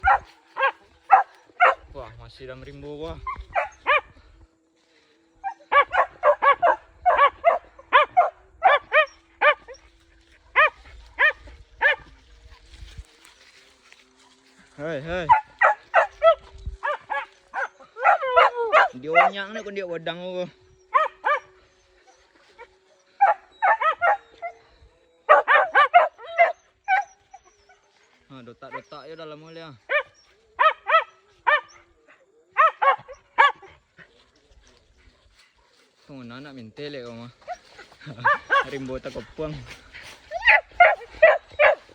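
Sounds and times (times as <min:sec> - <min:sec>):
dog barking: 0:00.0 - 0:02.0, 0:03.2 - 0:04.2, 0:05.4 - 0:12.7, 0:15.2 - 0:19.7, 0:20.8 - 0:28.0, 0:28.6 - 0:29.0, 0:29.8 - 0:34.2, 0:37.4 - 0:41.9.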